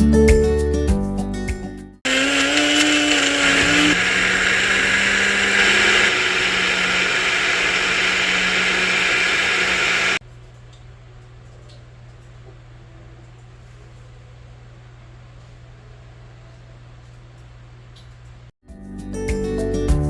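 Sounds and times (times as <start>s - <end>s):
blender motor whirring: 2.1s - 10.2s.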